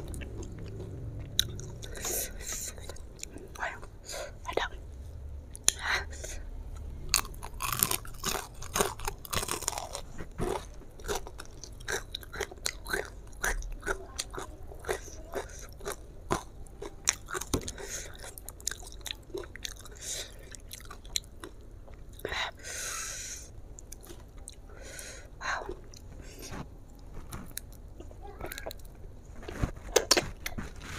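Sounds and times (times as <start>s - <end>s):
fried chicken crunching: 7.0s - 21.5s.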